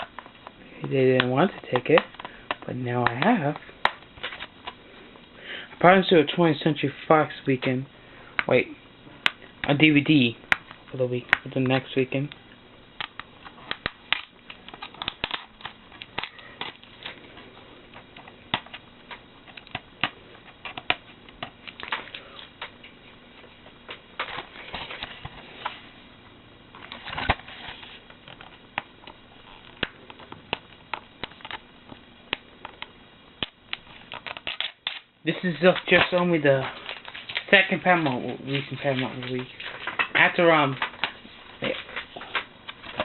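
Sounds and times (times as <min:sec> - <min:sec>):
plastic shrink wrap crinkling: 0:33.7 - 0:43.0.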